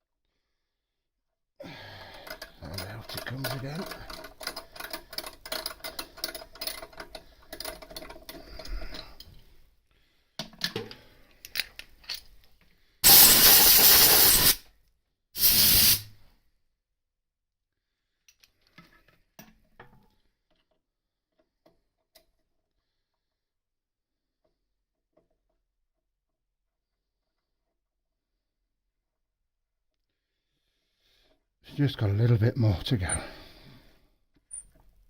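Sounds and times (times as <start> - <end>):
compressed air blasts: 13.0 - 14.6, 15.4 - 16.1.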